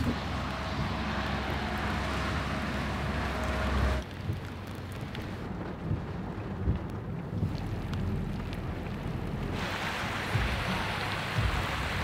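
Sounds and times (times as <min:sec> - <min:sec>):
distant outboard motor whine: 0:00.0 - 0:04.0
rain falling: 0:00.0 - 0:12.0
wind rumble on microphone: 0:00.0 - 0:12.0.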